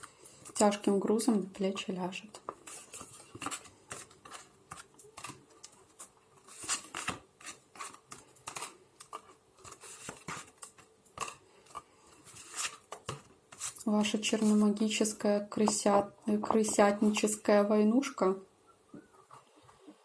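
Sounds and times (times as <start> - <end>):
cards clicking and rustling: 2.4 - 13.8.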